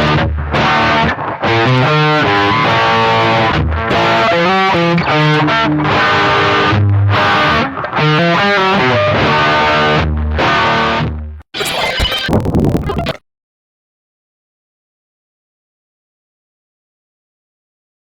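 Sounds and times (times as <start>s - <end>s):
distorted electric guitar riff: 0.0s - 13.2s.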